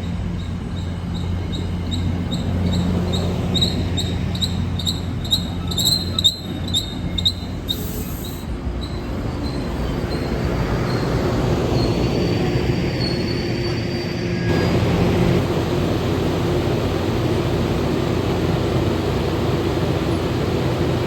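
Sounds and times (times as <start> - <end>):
high wheel squeal: 0.0 - 15.3
diesel train engine hum: 0.0 - 21.0
train bell dinging: 8.4 - 14.9.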